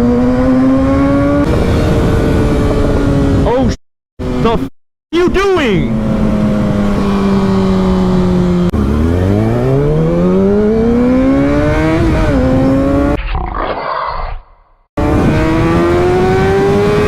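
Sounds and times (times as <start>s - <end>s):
motorcycle engine accelerating: 0.0s - 3.5s, 4.2s - 4.7s, 5.8s - 13.2s, 15.0s - 17.0s.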